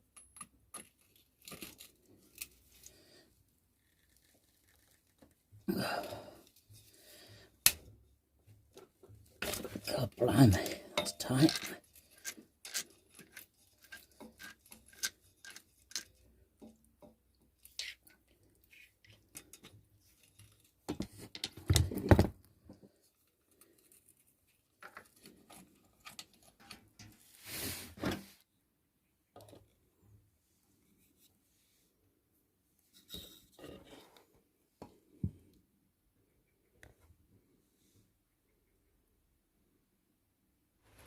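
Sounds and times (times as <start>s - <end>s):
metallic clicks and taps of tools: 0.1s - 2.6s.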